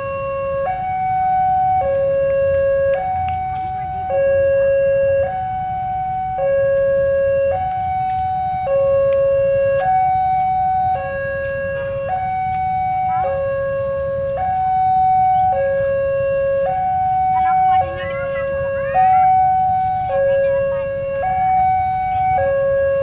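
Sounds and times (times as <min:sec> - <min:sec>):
level crossing two-tone alarm: 0:00.0 - 0:23.0.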